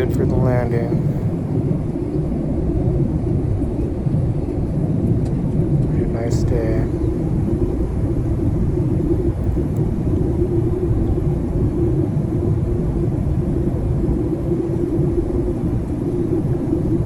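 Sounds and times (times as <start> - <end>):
airliner cabin engine rumble: 0.0 - 17.0
constant hum: 0.0 - 17.0.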